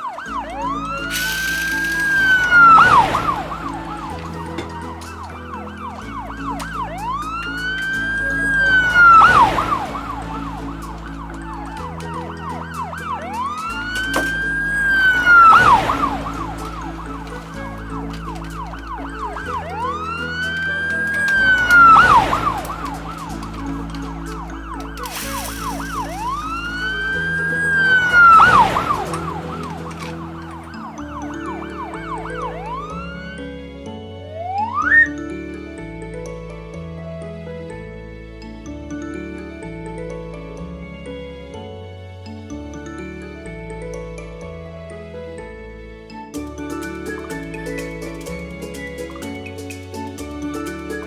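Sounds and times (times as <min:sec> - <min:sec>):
fast warbling siren: 0:00.0 - 0:33.6, 0:34.3 - 0:35.1, 0:46.7 - 0:51.0
slow siren whoop: 0:00.0 - 0:35.1
background music: 0:00.0 - 0:51.0.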